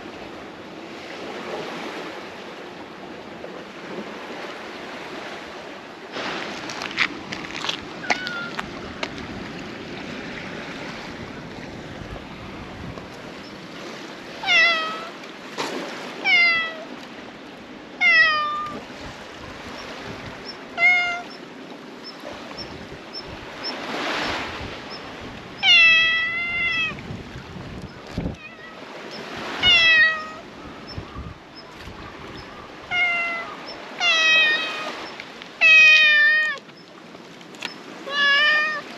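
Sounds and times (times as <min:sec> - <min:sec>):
cat meowing: 0:08.0 - 0:08.6, 0:14.4 - 0:15.1, 0:16.2 - 0:16.9, 0:18.0 - 0:18.8, 0:20.8 - 0:21.3, 0:25.6 - 0:27.0, 0:28.3 - 0:28.9, 0:29.5 - 0:30.5, 0:32.9 - 0:35.0, 0:35.6 - 0:36.6, 0:38.0 - 0:38.9.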